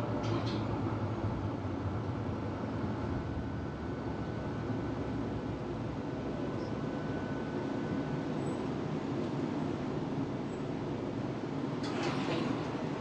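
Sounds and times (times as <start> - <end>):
tram wheels and motors rumbling: 0.0 - 13.0.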